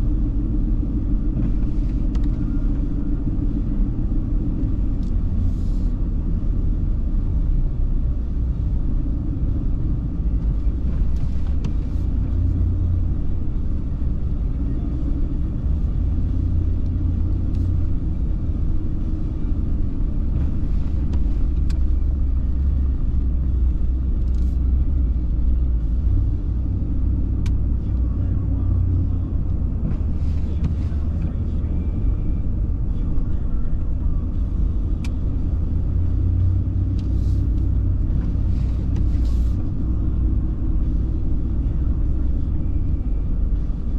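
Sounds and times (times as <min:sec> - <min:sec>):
car engine and road noise: 0:00.0 - 0:43.9.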